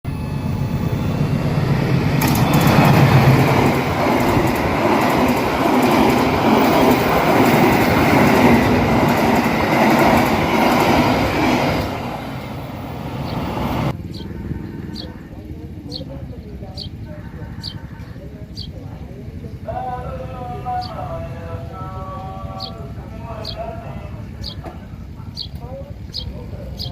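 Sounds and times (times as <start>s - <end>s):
train passing at speed: 0.1s - 26.9s
wheels clattering over track: 2.0s - 14.0s.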